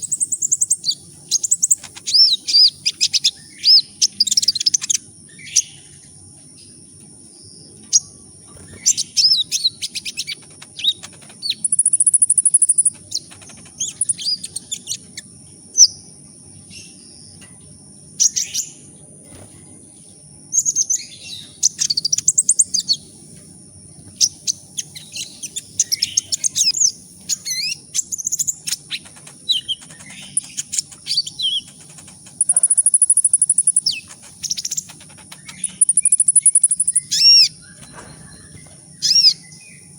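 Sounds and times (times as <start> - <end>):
bird chirping and twittering: 0.0 - 39.9
faint low hum: 0.0 - 39.9.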